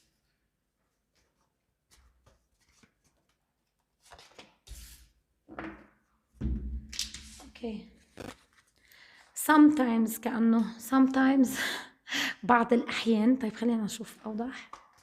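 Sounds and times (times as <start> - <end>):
cards rustling and tapping: 14.2 - 15.0.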